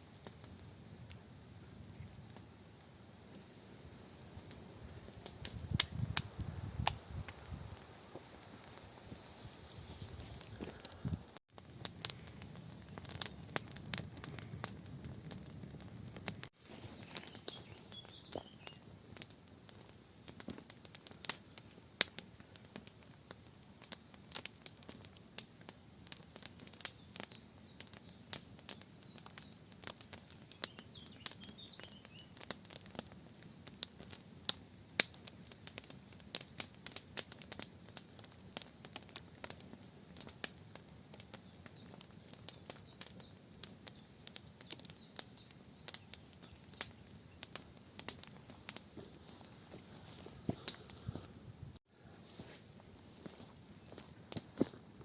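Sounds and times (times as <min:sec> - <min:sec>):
campfire crackling and popping: 0:00.1 - 0:51.6, 0:52.4 - 0:55.0
bird chirps: 0:16.8 - 0:18.8, 0:30.2 - 0:32.3.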